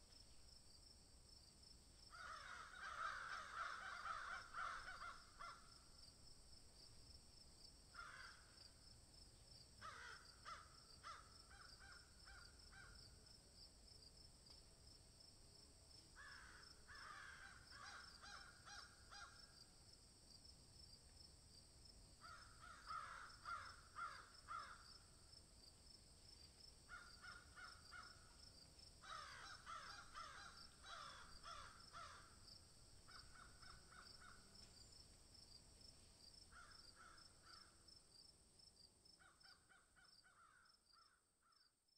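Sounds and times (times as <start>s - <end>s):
high insect trill: 0.0s - 13.4s, 21.9s - 38.4s.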